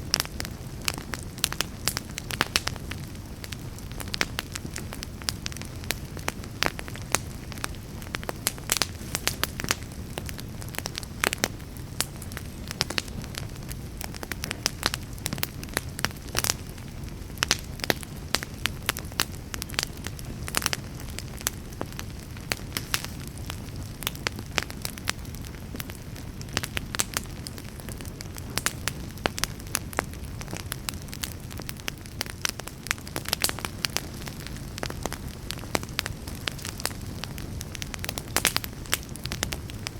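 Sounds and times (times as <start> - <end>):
logs popping and crackling: 0.0 - 39.9
low rumble of flames: 0.0 - 39.9.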